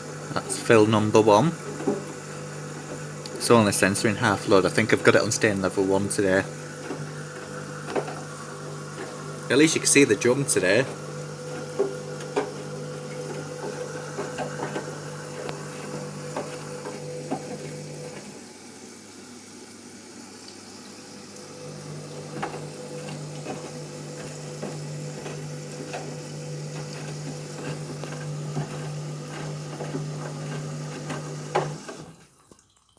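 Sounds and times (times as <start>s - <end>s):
washing machine hum: 0.0s - 32.7s
water sloshing in drum: 0.2s - 18.4s.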